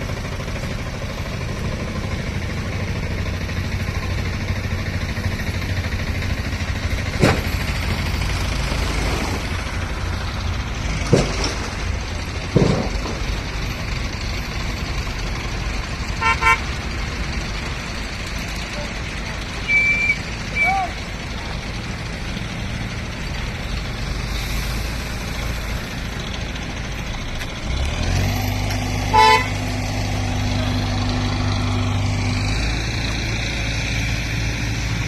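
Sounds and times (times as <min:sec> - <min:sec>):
road traffic passing: 0:00.0 - 0:35.0
sharp knocks: 0:07.2 - 0:08.2
car horn toots: 0:16.2 - 0:16.6, 0:29.1 - 0:29.6.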